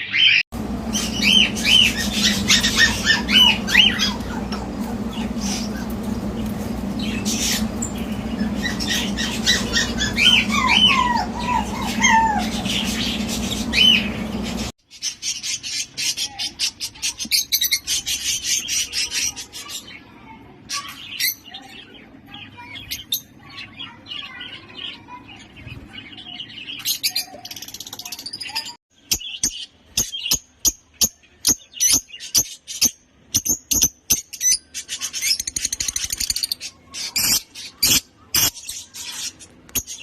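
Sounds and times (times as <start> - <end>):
lovebirds chirping and squawking: 0.0 - 40.0
steady low hum: 0.6 - 14.7.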